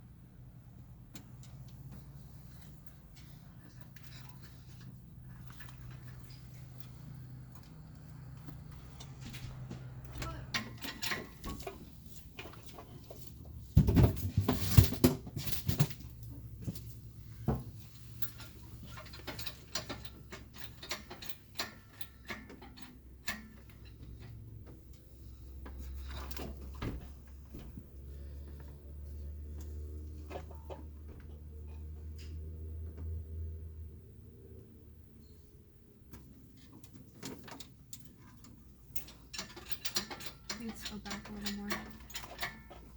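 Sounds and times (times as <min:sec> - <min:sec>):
clicks knocks and rattles: 0:36.1 - 0:42.9.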